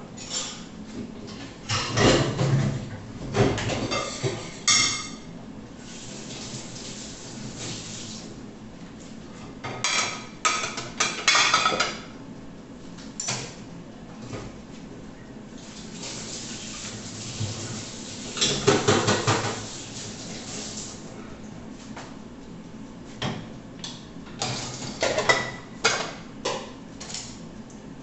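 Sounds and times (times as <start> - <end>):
dishes and cutlery clattering: 0.2 - 0.7, 3.4 - 5.3, 9.7 - 12.0, 18.4 - 19.6, 24.4 - 27.2.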